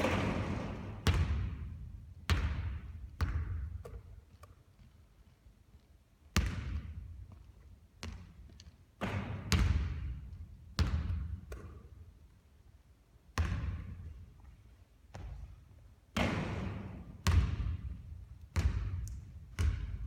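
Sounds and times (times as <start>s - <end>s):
basketball hitting hoop and bouncing: 0.0s - 4.1s, 9.0s - 10.2s, 16.1s - 20.0s.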